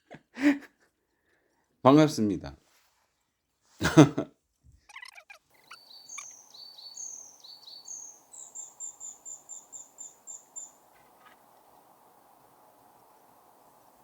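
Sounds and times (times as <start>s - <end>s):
faint outdoor background noise: 0.0s - 14.0s
small songbird singing: 4.9s - 14.0s.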